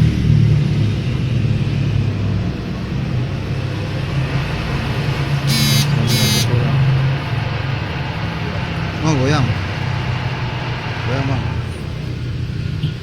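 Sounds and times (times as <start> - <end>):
metal lathe humming: 5.3 - 12.0
high-pitched squeals: 5.5 - 6.7.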